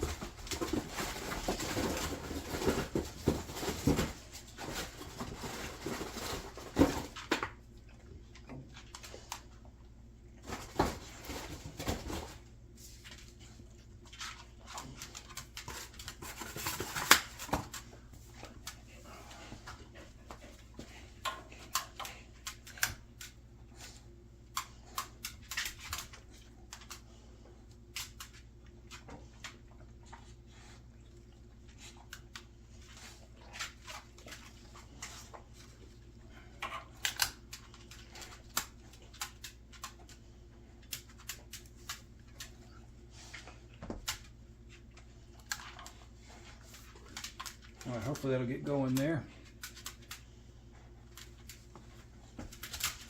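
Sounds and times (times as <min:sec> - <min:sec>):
fire crackling in a wood stove: 0:17.0 - 0:53.0.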